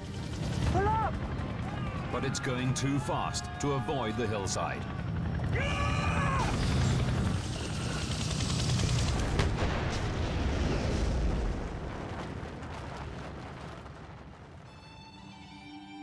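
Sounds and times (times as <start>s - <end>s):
loud rumbling crash roar: 5.5s - 14.7s
sharp crack: 8.4s - 14.6s.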